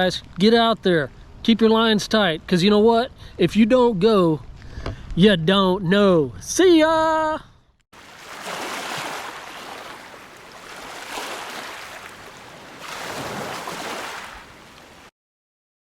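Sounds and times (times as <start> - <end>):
waves washing in: 8.0 - 15.1.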